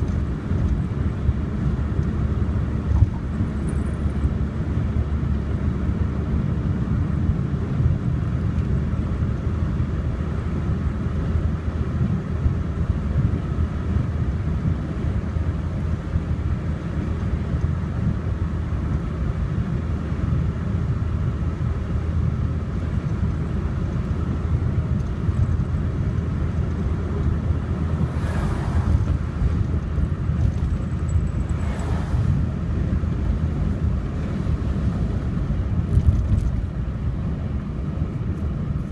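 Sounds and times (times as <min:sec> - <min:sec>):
car driving road noise: 0:00.0 - 0:38.9
brief whooshes: 0:28.0 - 0:29.4, 0:31.5 - 0:32.5.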